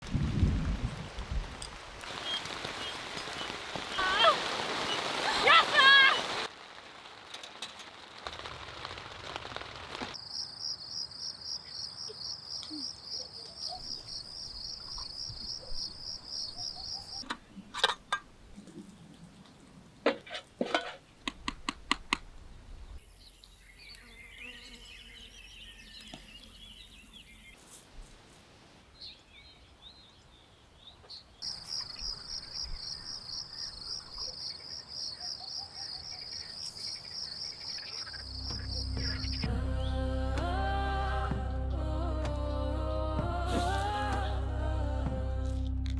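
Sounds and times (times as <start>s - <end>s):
rain patter: 0.0s - 10.2s
cricket chirping: 10.2s - 17.2s, 23.0s - 27.6s, 31.4s - 39.4s.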